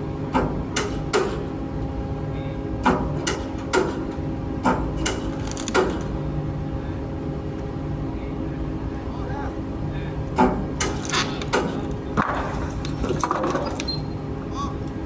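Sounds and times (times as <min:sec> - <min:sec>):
engine-room machinery drone: 0:00.0 - 0:15.0
sharp knocks on metal: 0:00.3 - 0:01.5, 0:02.8 - 0:06.0.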